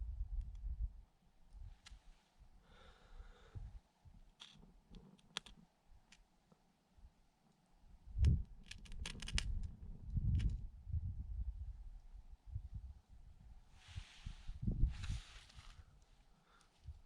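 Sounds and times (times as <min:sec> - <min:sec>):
wind buffeting microphone: 0:08.1 - 0:15.4.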